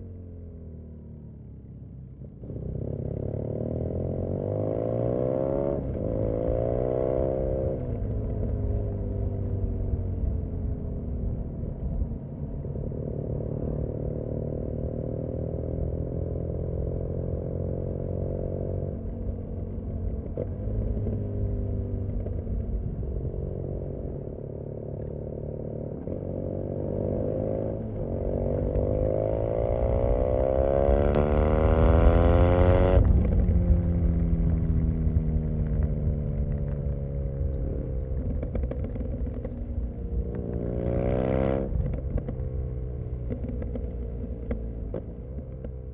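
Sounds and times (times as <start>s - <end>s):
motorcycle engine revving: 25.4s - 45.9s.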